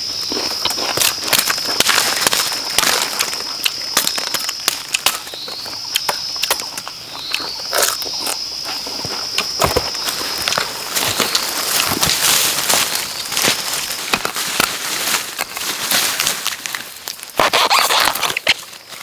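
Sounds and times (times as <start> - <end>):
high-pitched insect drone: 0.0 - 14.2
sharp snaps and crackles: 0.3 - 8.5, 9.3 - 19.0.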